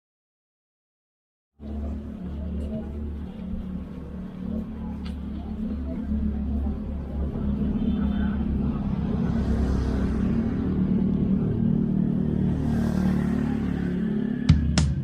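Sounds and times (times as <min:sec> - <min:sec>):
vehicle engine rumble: 0:01.6 - 0:15.0
hiss of passing traffic: 0:05.7 - 0:14.4
music with drum hits: 0:14.5 - 0:15.0.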